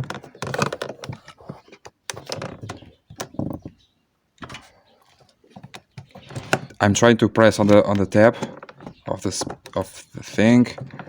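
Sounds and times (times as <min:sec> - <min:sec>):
plastic clicks and knocks: 0:00.0 - 0:03.8, 0:07.5 - 0:09.9.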